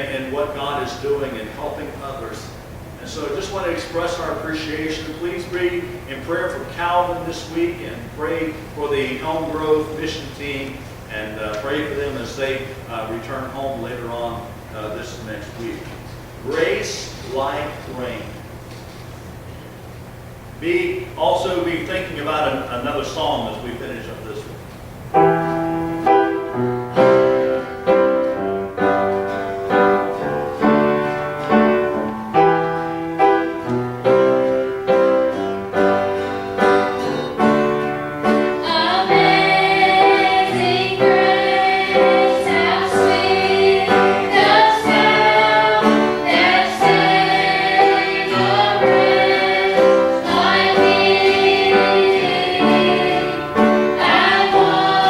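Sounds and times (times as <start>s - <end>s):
piano chords: 20.2s - 55.0s
gospel choir singing: 25.2s - 55.0s.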